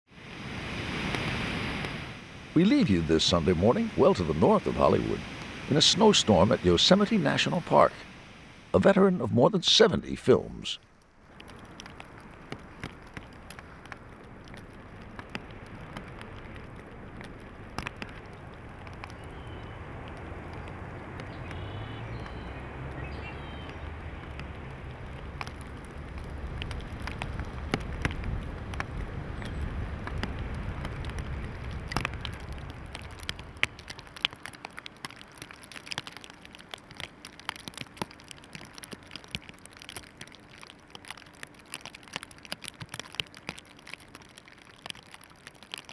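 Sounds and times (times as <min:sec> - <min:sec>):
low rush of wind: 0:00.1 - 0:08.8, 0:11.2 - 0:34.3
small ticks and crackles: 0:00.2 - 0:08.6, 0:10.8 - 0:45.9.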